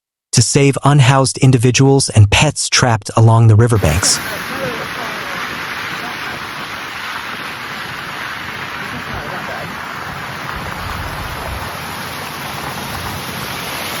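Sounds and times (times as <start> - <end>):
low rumbles: 3.7 - 13.7
steady rain hiss: 3.8 - 14.0.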